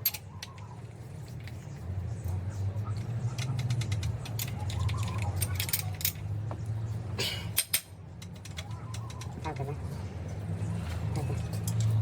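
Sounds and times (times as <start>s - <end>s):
metal parts clinking: 0.0s - 0.6s, 3.0s - 6.3s.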